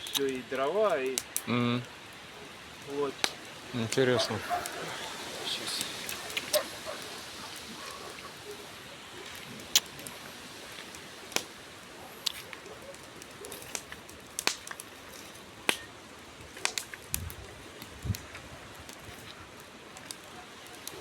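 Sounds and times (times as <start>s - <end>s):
campfire hissing: 0.0s - 21.0s
wood popping in fire: 0.0s - 21.0s.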